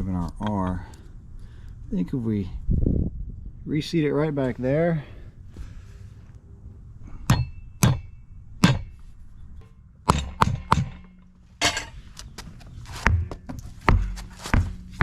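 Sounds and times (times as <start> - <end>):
hammer striking metal rim: 7.3 - 9.0, 9.6 - 12.0.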